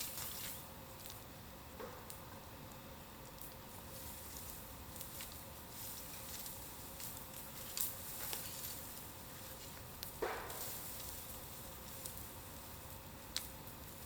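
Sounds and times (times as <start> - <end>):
bonfire crackling: 0.0 - 14.0
fire hissing: 0.0 - 14.0
sharp pops: 9.9 - 12.2.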